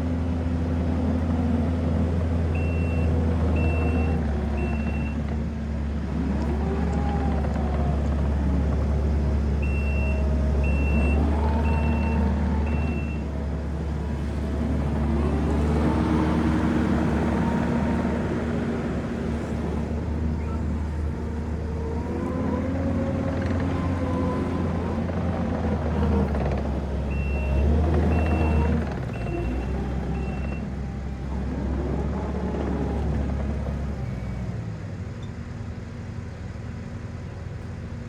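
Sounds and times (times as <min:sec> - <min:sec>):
skid steer engine and hydraulics: 0:00.0 - 0:38.0
reversing alarm beeps: 0:02.6 - 0:05.2, 0:09.6 - 0:13.3, 0:27.1 - 0:30.6.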